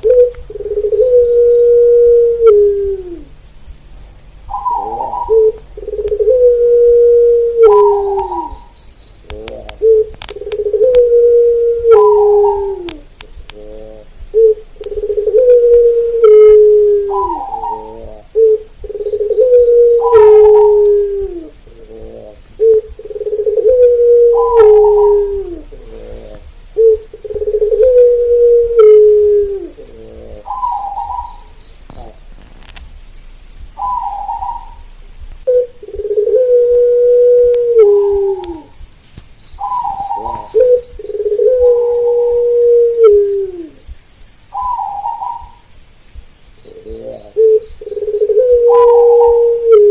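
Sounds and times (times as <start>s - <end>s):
dove cooing: 0.0s - 3.5s, 4.4s - 32.7s, 33.6s - 38.9s, 39.6s - 45.7s, 46.6s - 49.9s
higher bird call: 4.5s - 32.3s, 33.7s - 34.9s, 39.6s - 43.9s.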